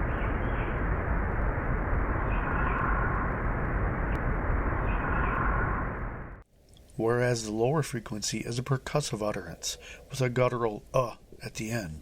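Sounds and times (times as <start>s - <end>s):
low rumble: 0.0s - 6.4s
steady hiss: 0.0s - 6.4s.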